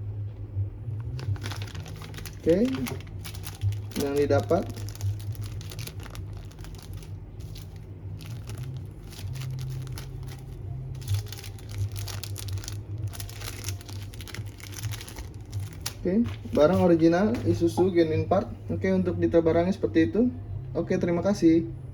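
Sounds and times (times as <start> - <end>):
low steady hum: 0.0 - 21.9
packaging crinkling and rustling: 1.0 - 18.0.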